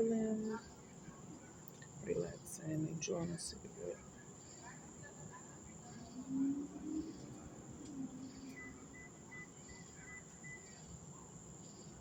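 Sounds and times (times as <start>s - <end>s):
crickets chirping: 5.6s - 12.0s.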